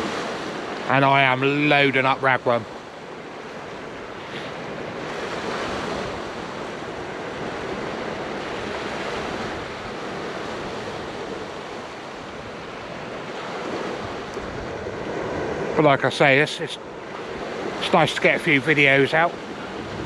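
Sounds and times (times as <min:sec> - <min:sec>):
sea waves washing onto beach: 0:00.0 - 0:20.0
wind on microphone: 0:03.0 - 0:15.8, 0:18.8 - 0:20.0.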